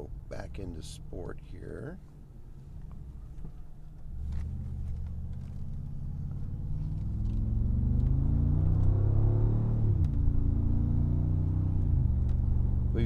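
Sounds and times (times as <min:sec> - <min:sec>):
car engine accelerating: 0:02.7 - 0:13.0.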